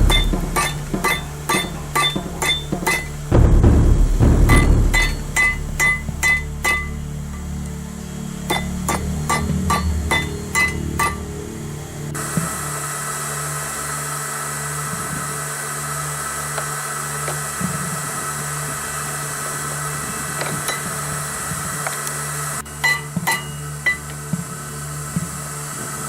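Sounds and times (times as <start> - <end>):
sharp metallic knocks: 0.0 - 7.5, 8.4 - 11.4, 22.7 - 24.0.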